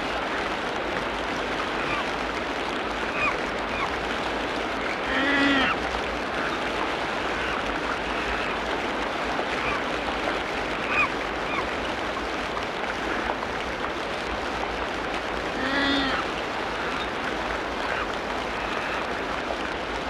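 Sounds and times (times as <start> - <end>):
dense steady hiss: 0.0 - 20.0
animal call with curving tones: 15.6 - 16.2.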